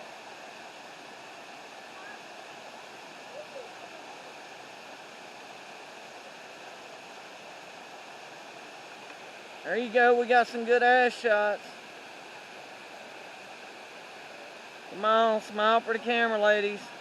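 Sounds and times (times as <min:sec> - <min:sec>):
waterfall rushing: 0:00.0 - 0:17.0
faint distant voice: 0:03.2 - 0:04.4.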